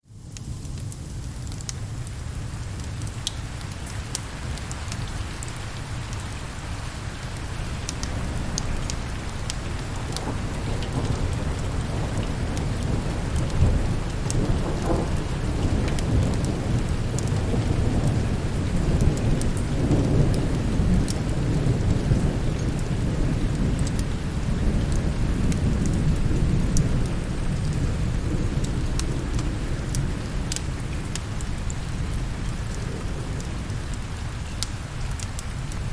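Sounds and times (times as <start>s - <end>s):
steady rain: 0.0s - 35.9s
low rumble of thunder: 4.2s - 35.9s.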